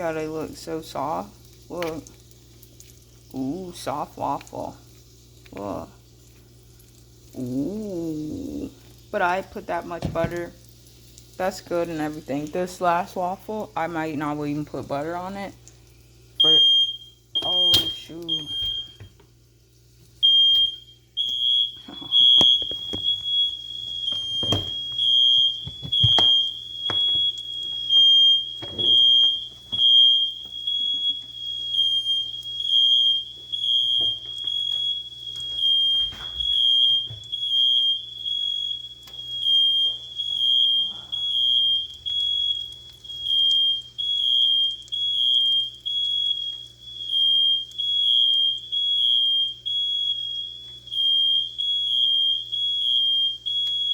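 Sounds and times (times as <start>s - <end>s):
smoke alarm pulsing tone: 5.6s - 19.3s, 20.2s - 53.9s.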